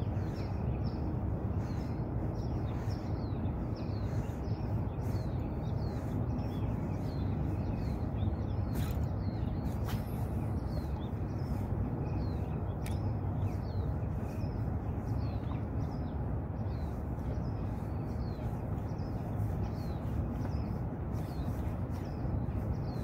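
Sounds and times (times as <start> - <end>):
low rushing background noise: 0.0 - 23.0
small bird chirping: 0.0 - 23.0
sharp clicks: 12.8 - 13.1.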